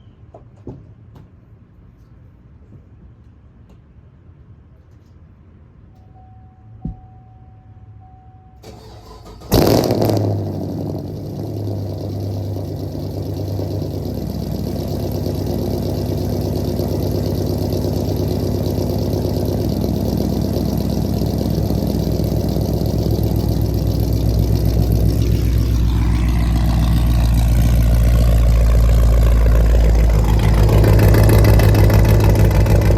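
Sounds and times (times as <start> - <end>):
car engine starting: 8.6 - 32.9
loud car engine idling: 8.7 - 32.9.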